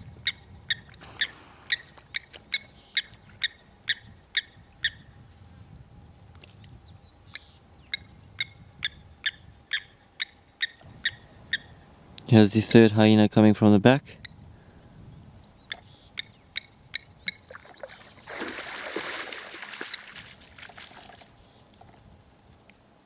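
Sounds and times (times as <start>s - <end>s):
bird calling sharp notes: 0.2s - 5.1s, 7.2s - 12.2s, 15.6s - 20.2s.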